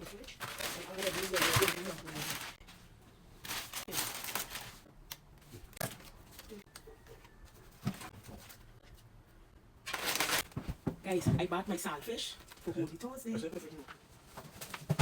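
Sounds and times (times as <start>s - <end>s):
grocery packaging rustling: 0.0s - 6.7s, 9.8s - 15.0s.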